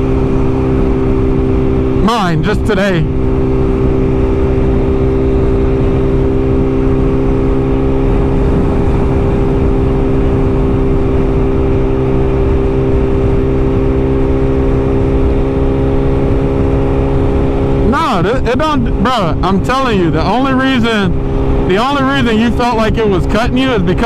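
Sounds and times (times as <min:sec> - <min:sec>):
motorcycle engine cruising: 0:00.0 - 0:24.0
wind rush: 0:00.0 - 0:24.0.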